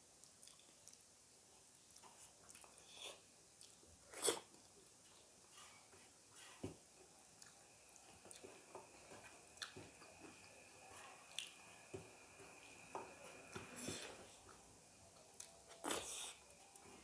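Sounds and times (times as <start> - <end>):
wet chewing: 1.9 - 5.2, 7.3 - 10.5, 11.2 - 12.3.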